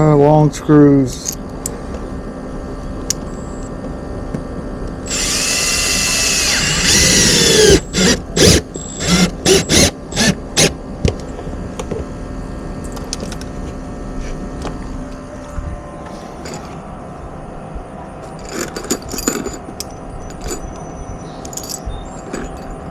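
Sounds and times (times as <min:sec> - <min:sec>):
power drill driving screw: 0:05.1 - 0:10.7.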